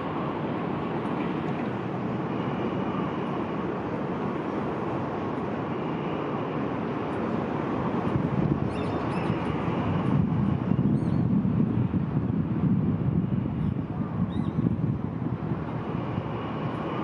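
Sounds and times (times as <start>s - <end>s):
train coaches rolling past: 0.0s - 10.8s, 15.0s - 17.0s.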